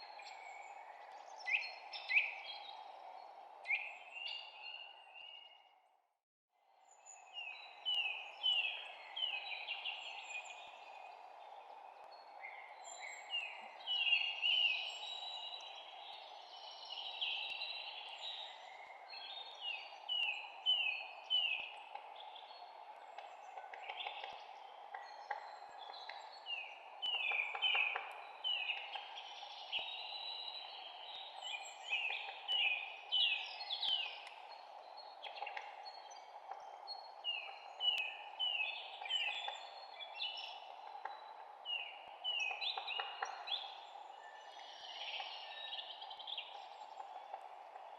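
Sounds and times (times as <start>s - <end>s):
songbirds chirping: 0.0s - 6.0s, 6.6s - 47.9s.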